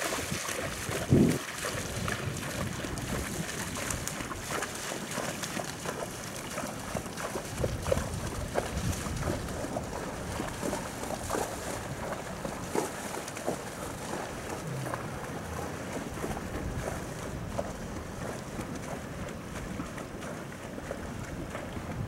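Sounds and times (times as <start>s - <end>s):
horse wading through water: 0.0s - 22.0s.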